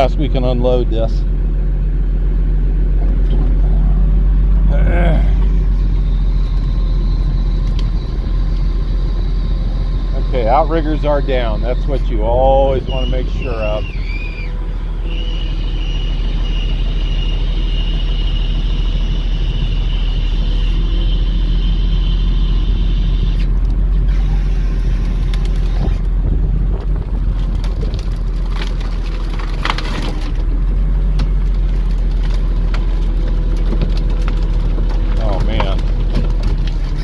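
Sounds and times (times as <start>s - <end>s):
truck diesel engine running: 0.0s - 37.0s
high hydraulic whine: 4.7s - 27.1s
sharp cracks and knocks: 26.7s - 30.5s, 31.1s - 37.0s.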